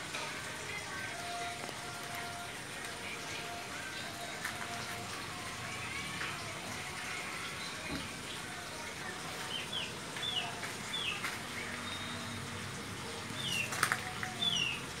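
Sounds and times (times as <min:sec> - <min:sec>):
small bird chirping: 0:13.4 - 0:14.8.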